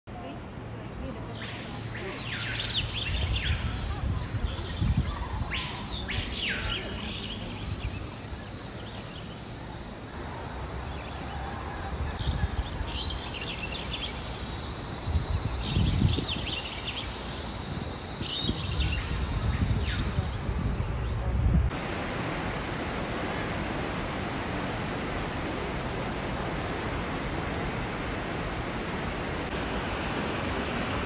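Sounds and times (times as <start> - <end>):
birds calling: 1.0 - 21.3
high insect drone: 1.1 - 21.2.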